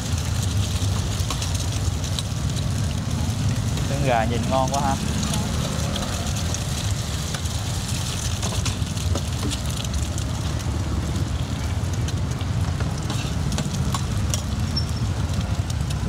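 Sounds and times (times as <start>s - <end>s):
oil sizzling on a griddle: 0.0s - 16.0s
metal spatula scraping a pan: 13.0s - 13.5s.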